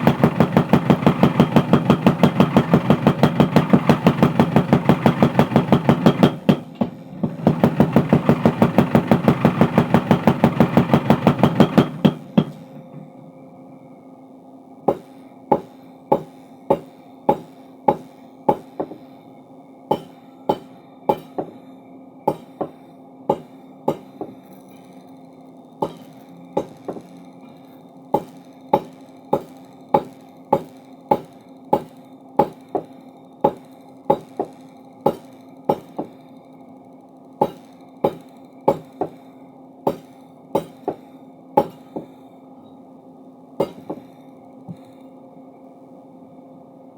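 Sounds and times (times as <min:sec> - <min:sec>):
hammer blows ringing on metal: 0:00.0 - 0:12.7, 0:14.9 - 0:19.1, 0:19.9 - 0:21.6, 0:22.3 - 0:24.5, 0:25.8 - 0:27.1, 0:28.1 - 0:36.2, 0:37.4 - 0:39.2, 0:39.9 - 0:42.2, 0:43.6 - 0:44.1
power hammer pounding: 0:00.0 - 0:12.7, 0:14.9 - 0:19.1, 0:19.9 - 0:21.6, 0:22.3 - 0:24.5, 0:25.8 - 0:27.2, 0:28.1 - 0:36.2, 0:37.4 - 0:39.2, 0:39.9 - 0:42.2, 0:43.6 - 0:44.1
machine humming: 0:00.0 - 0:46.9.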